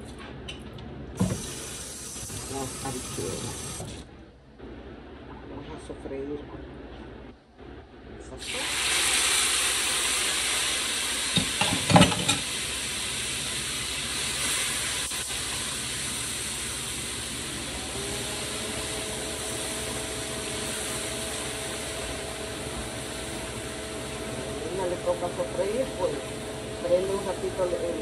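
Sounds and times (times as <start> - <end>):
vegetables sizzling in hot oil: 8.4 - 27.3.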